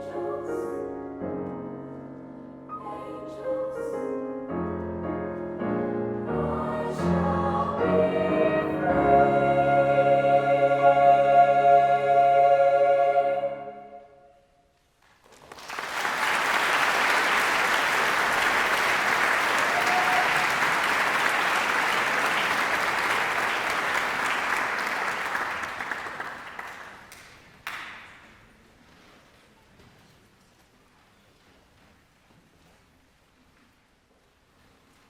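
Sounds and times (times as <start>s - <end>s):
choir holding a chord: 0.0s - 1.0s, 2.7s - 4.1s, 5.6s - 14.4s
audience applause: 15.0s - 28.2s.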